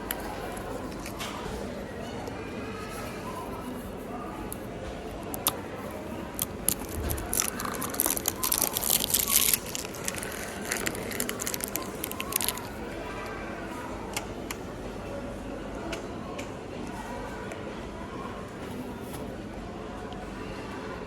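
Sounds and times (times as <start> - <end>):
objects clicking and tapping: 4.5 - 12.8.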